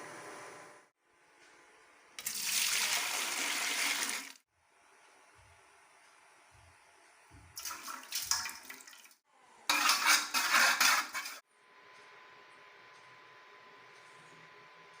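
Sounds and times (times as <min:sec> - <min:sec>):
metal utensils clattering in pot: 0:09.7 - 0:11.4.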